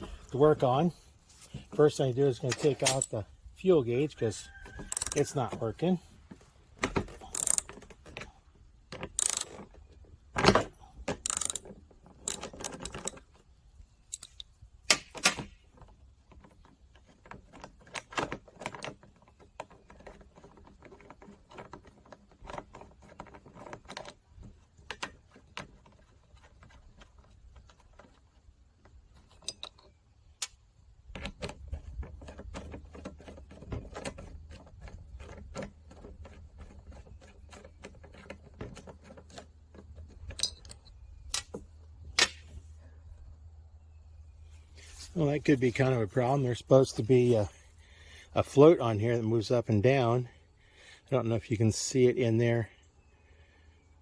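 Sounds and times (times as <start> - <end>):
metal parts clinking: 1.5 - 3.6, 4.9 - 5.7, 7.1 - 8.2, 9.1 - 9.7, 11.2 - 13.2, 40.1 - 41.6.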